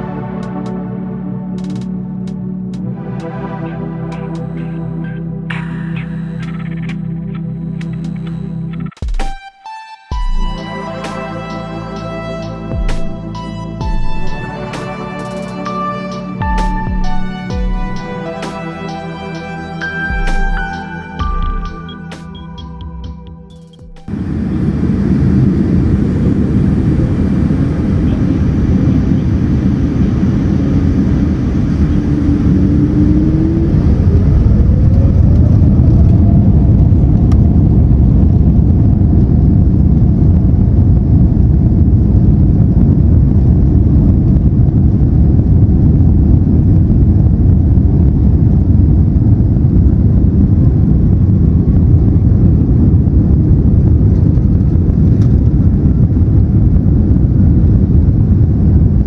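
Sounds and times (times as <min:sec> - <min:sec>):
jet engines rumbling: 0:01.6 - 0:08.9, 0:24.0 - 0:59.0
rising engine whine: 0:10.1 - 0:22.8, 0:24.0 - 0:59.0.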